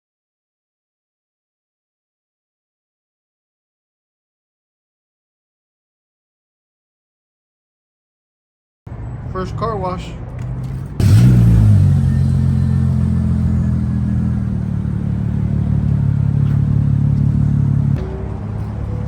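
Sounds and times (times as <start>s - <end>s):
car engine revving and running: 10.3s - 19.0s.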